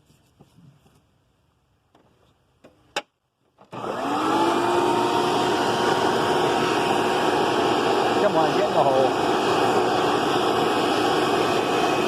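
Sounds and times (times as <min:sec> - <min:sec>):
vacuum cleaner motor running: 0:03.7 - 0:12.0.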